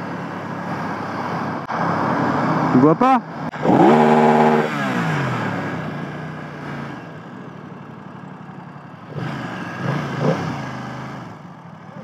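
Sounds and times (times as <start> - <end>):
motorcycle engine revving: 3.5 - 8.4, 9.0 - 12.0.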